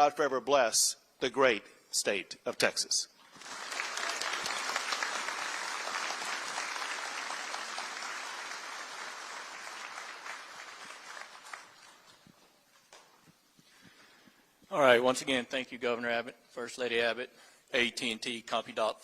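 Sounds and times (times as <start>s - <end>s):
audience applauding: 3.2s - 12.5s.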